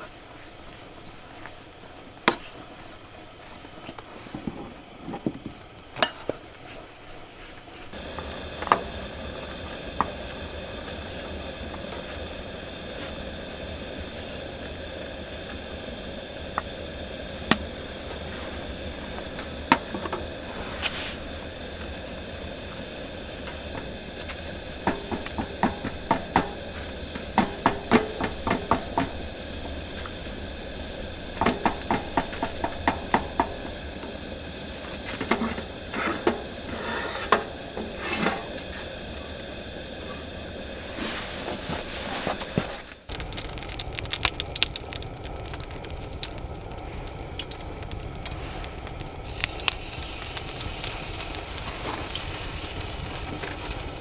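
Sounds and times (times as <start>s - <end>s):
steady hiss: 0.0s - 54.0s
utensils clinking against pots: 6.0s - 6.4s, 7.9s - 43.4s.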